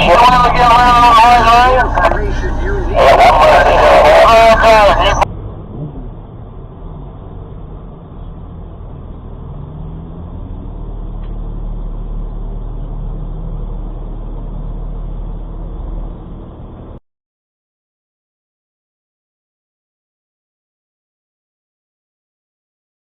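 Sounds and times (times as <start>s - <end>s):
vehicle engine and road rumble: 0.0s - 17.0s.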